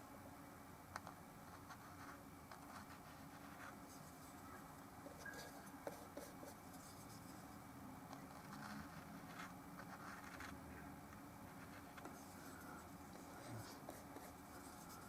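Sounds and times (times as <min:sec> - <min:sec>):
low steady hum: 0:00.0 - 0:15.0
paintbrush scratching: 0:01.5 - 0:07.6, 0:08.2 - 0:10.6, 0:11.5 - 0:15.0.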